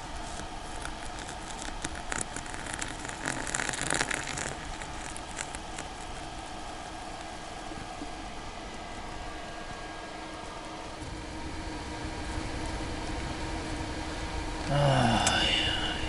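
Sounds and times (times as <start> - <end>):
wet snow pattering on fabric: 0.0 - 9.8.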